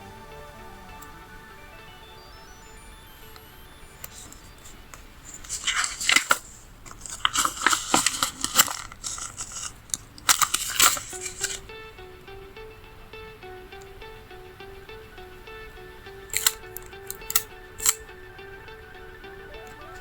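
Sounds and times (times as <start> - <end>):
soft background music: 0.0 - 6.3, 10.4 - 20.0
paper sticker sheets crackling: 4.1 - 11.6.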